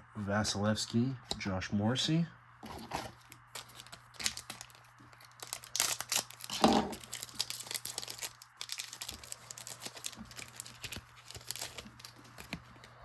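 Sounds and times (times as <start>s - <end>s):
card pack wrapper crinkling and tearing: 2.6s - 13.0s
cards rustling and flicking: 2.6s - 13.0s.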